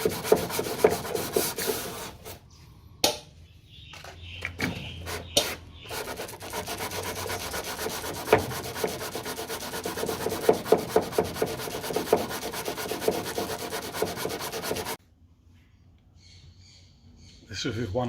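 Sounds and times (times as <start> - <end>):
sandpaper rasping on filler: 0.0 - 2.4, 4.9 - 15.0.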